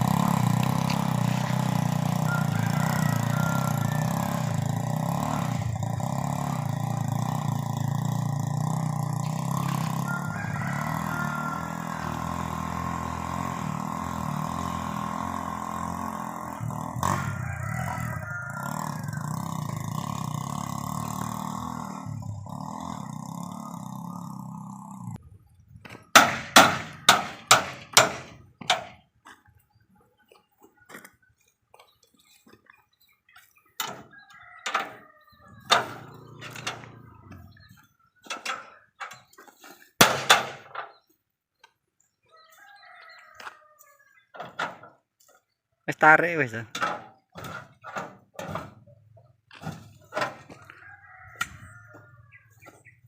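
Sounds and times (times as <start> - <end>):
motorcycle engine running: 0.0 - 30.4, 31.7 - 39.4
sharp knocks: 26.1 - 29.0, 40.0 - 40.9.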